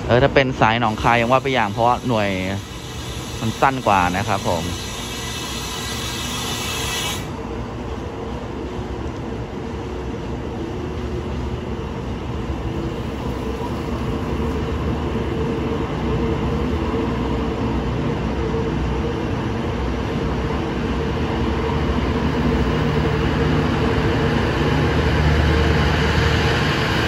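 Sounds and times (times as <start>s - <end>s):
train wheels running on rails: 0.0s - 27.0s.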